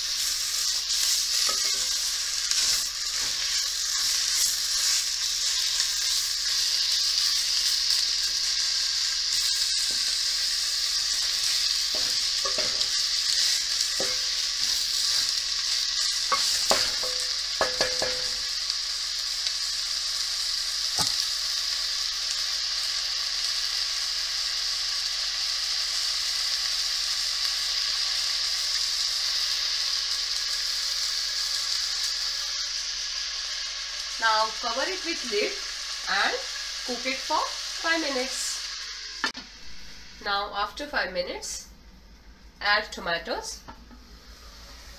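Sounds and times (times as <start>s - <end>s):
meat and onions sizzling in oil: 0.0s - 41.1s
wooden spatula scraping a pot: 0.9s - 5.0s, 11.2s - 15.4s.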